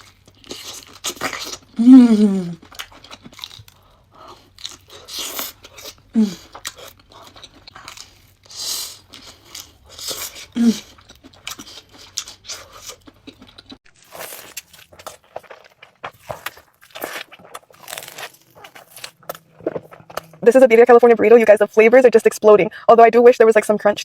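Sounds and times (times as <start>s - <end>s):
chewing and crunching food: 0.0s - 22.0s
person humming: 1.8s - 2.6s.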